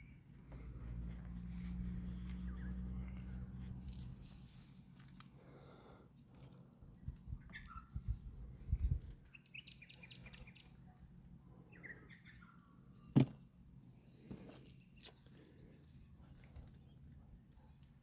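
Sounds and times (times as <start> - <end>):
faint bird chirps: 2.3 - 3.1, 7.3 - 8.1, 9.2 - 13.2.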